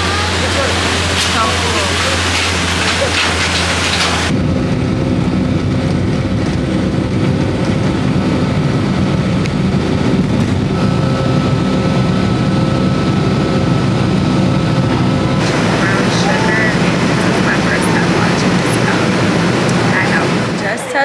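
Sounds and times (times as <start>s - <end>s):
loud hiss: 0.0s - 4.3s, 15.4s - 20.8s
airliner engine drone: 0.0s - 21.0s.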